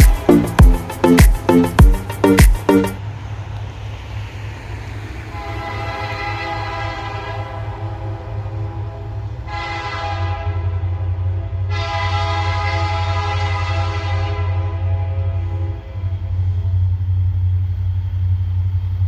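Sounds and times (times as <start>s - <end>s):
locomotive engine rumble: 0.0s - 3.3s, 10.6s - 19.0s
locomotive air horn chord: 5.4s - 16.4s.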